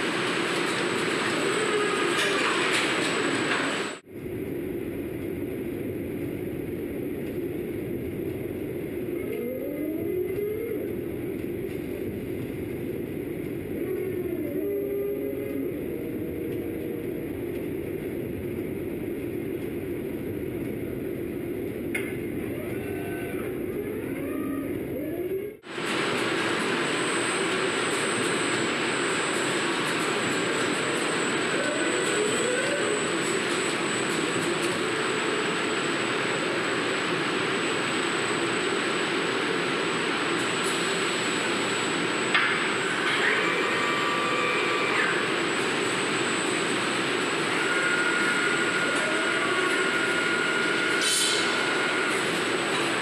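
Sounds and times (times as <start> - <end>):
machinery running: 0.0 - 53.0
faint whining tones: 4.1 - 25.6.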